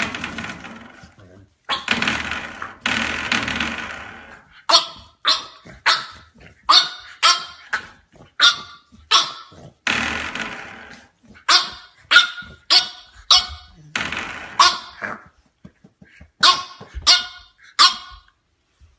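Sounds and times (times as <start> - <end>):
puppy growling: 0.0 - 15.4
puppy barking: 4.6 - 9.8, 11.4 - 13.9, 14.5 - 15.3, 16.4 - 18.4.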